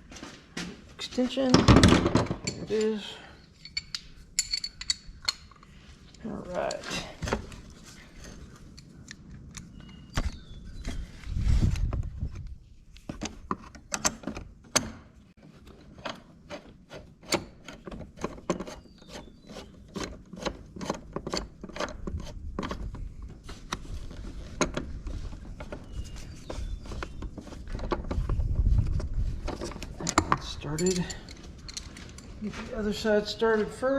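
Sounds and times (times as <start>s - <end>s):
metal tools clinking: 2.3s - 7.2s, 29.6s - 32.6s.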